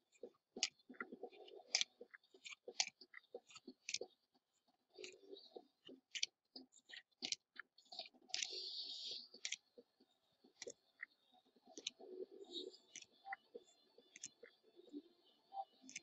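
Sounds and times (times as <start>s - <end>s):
faint clicks: 15.6s - 16.0s.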